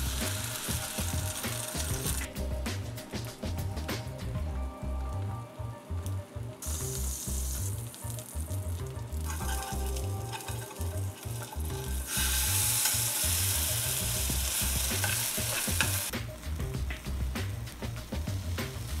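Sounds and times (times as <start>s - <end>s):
food sizzling in frying pan: 0.0s - 3.5s, 6.6s - 19.0s
spatula scraping pan: 9.3s - 13.2s.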